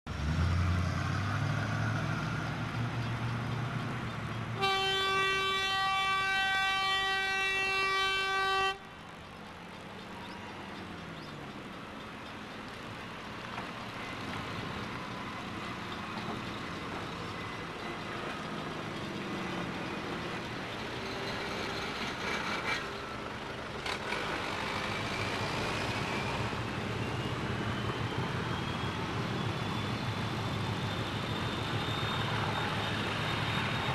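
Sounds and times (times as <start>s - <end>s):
train rumbling on the move: 0.1s - 33.9s
train engine running: 2.3s - 33.9s
train horn blast: 4.6s - 8.8s.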